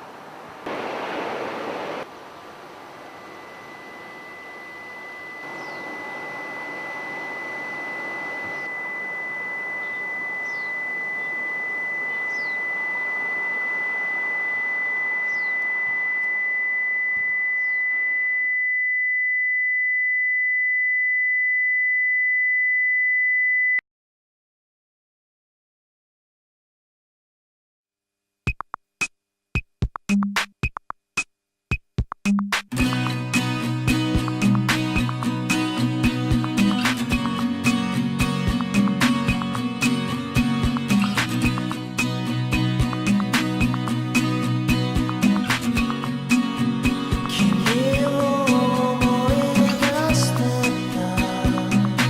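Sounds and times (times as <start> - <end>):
noisy hiss: 0.0 - 17.4
high electronic tone: 3.2 - 23.8.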